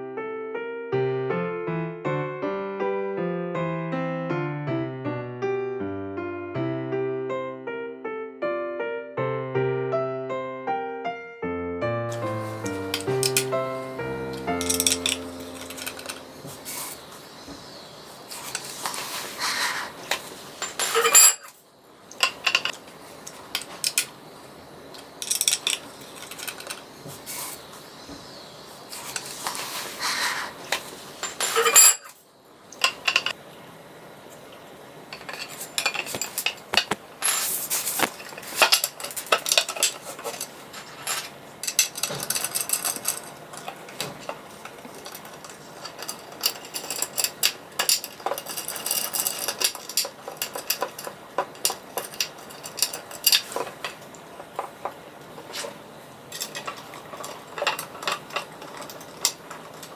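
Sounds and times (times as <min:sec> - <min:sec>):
small hard objects clinking: 0:12.5 - 0:13.5, 0:14.4 - 0:17.0, 0:18.3 - 0:21.6, 0:25.2 - 0:27.6, 0:31.2 - 0:32.2, 0:35.2 - 0:43.4, 0:44.9 - 0:54.7.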